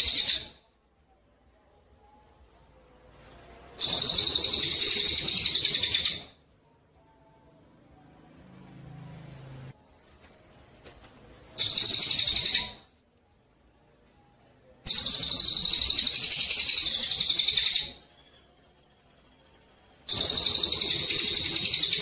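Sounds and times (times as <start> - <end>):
songbird trilling: 3.8 - 6.3, 11.5 - 12.8, 14.9 - 18.5, 20.1 - 22.0.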